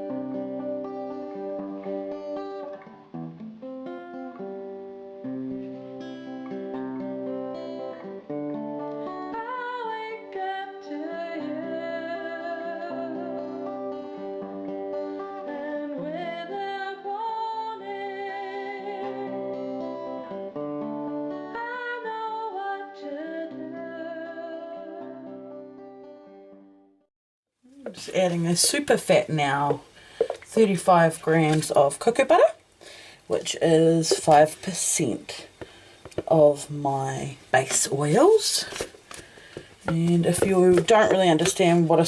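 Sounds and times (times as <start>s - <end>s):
woman singing: 9.0s - 14.2s, 15.3s - 19.5s, 21.5s - 25.3s.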